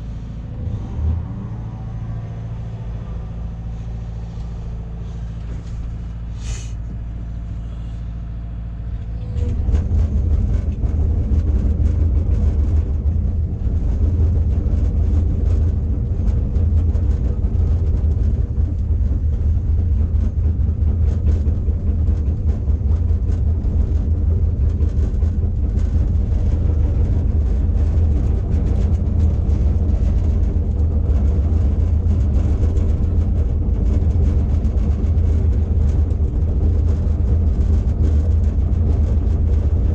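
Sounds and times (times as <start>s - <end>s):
diesel engine revving: 0.0s - 18.6s.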